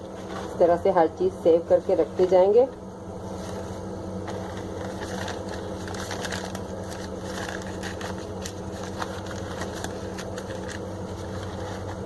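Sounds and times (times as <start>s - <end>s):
newspaper crinkling: 3.3s - 12.0s.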